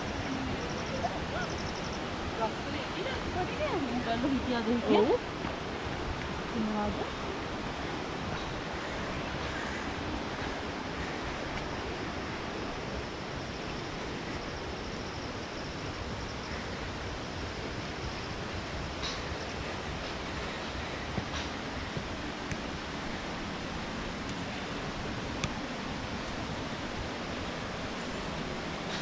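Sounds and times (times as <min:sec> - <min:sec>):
waterfall rushing: 0:00.0 - 0:09.0, 0:21.7 - 0:29.0.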